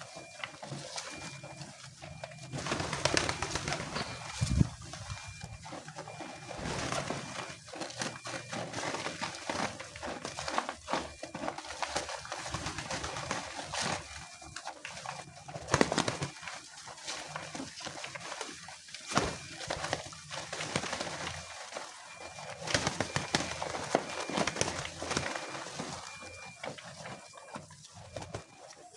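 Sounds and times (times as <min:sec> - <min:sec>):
pigeons cooing: 0:00.0 - 0:28.6.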